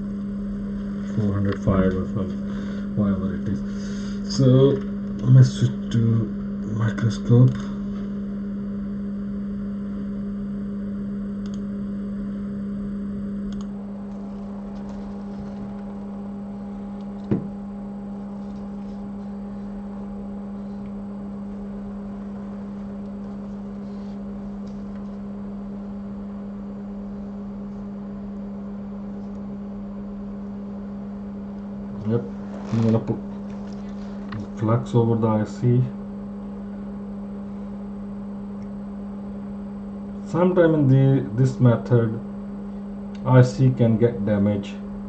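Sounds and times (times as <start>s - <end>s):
low electrical hum: 0.0s - 45.0s
short click: 11.4s - 11.6s.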